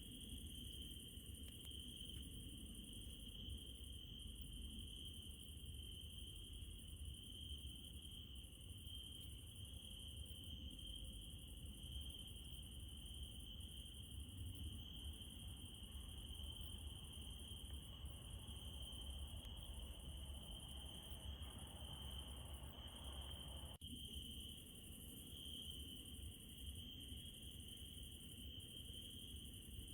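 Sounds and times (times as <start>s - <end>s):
crickets chirring: 0.0s - 29.9s.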